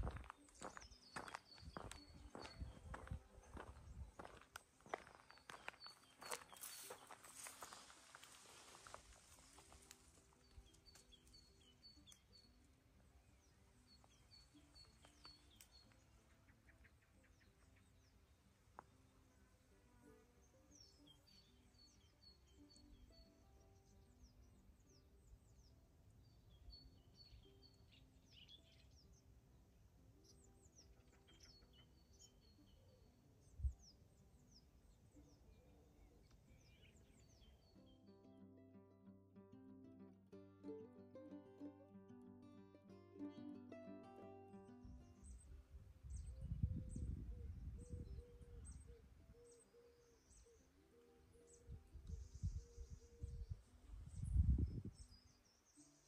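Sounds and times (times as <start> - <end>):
small birds chirping: 0.0 - 29.5, 30.1 - 38.1, 44.8 - 56.0
soft background music: 0.0 - 56.0
birds chirping and whistling: 45.1 - 56.0.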